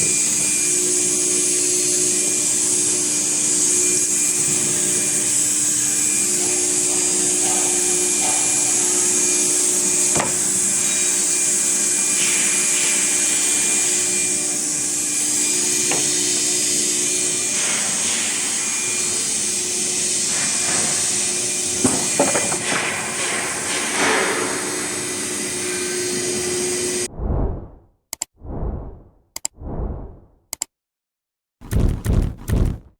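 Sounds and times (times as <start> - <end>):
wood router hissing and humming: 0.0 - 27.1
knocks: 21.8 - 23.4.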